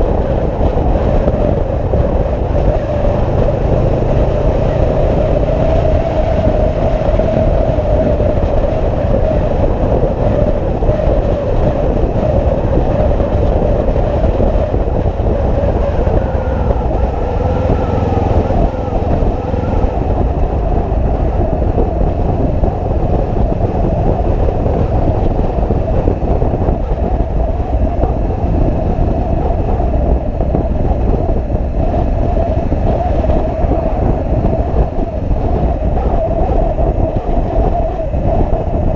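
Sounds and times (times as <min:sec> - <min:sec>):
motorcycle cruising drone: 0:00.0 - 0:38.9.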